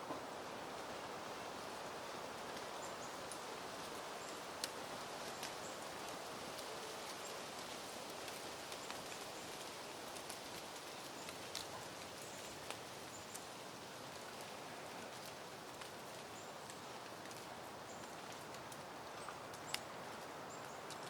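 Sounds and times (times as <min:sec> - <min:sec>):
breeze rustling through plants: 0:00.0 - 0:21.0
faint clicks: 0:14.1 - 0:21.0.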